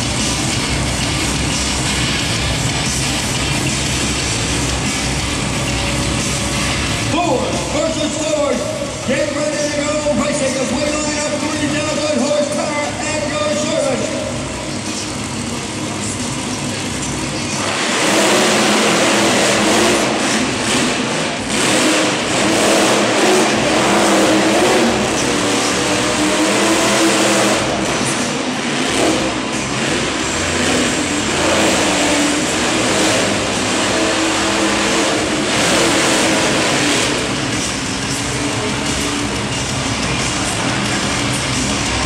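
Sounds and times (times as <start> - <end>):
monster truck engines revving: 0.0 - 42.0.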